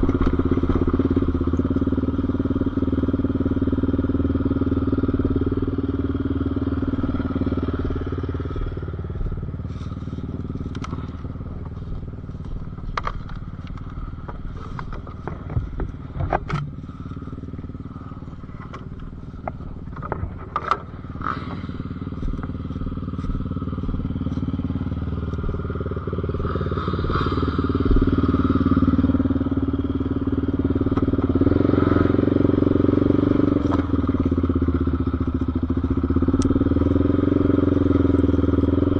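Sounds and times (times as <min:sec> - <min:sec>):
off-road vehicle engine running: 0:00.0 - 0:38.9
sharp clicks and knocks: 0:12.4 - 0:16.8, 0:18.5 - 0:21.6.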